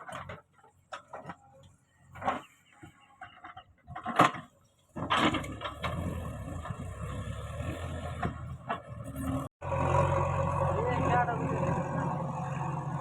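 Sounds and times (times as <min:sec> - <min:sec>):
diesel engine running: 0:05.2 - 0:13.0.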